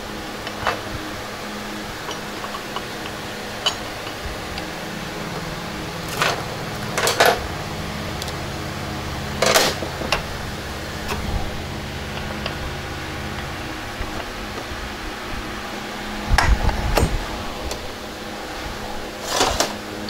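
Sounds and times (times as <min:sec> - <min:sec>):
workshop fan humming: 0:00.0 - 0:20.0
metallic clanks of tools: 0:02.0 - 0:04.7, 0:06.1 - 0:07.5, 0:09.4 - 0:10.3.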